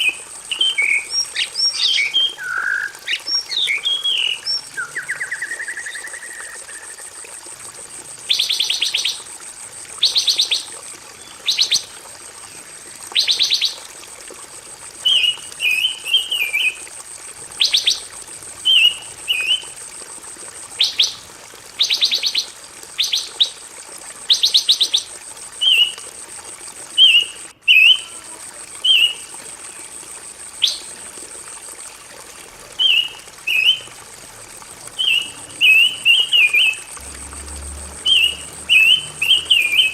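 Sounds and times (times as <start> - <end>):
songbird singing: 0.0 - 7.0, 35.0 - 37.1, 38.0 - 39.9.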